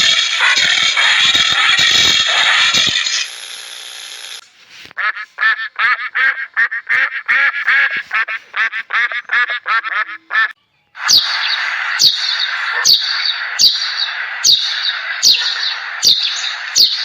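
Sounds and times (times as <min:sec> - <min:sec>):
duck quacking: 0:00.0 - 0:02.8, 0:05.0 - 0:13.4
sharp bird chirps: 0:10.9 - 0:17.0.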